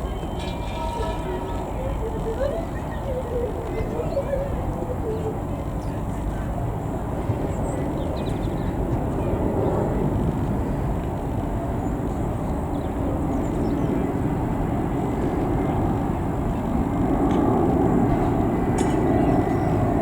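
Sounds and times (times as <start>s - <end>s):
jet engine rush: 6.1s - 20.0s.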